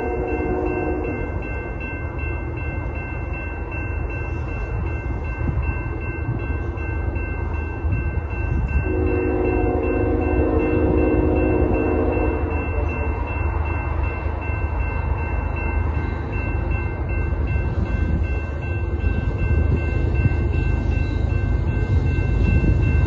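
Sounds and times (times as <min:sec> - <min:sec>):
train horn: 0:00.0 - 0:01.5, 0:08.7 - 0:13.4
freight train rumbling: 0:00.0 - 0:23.0.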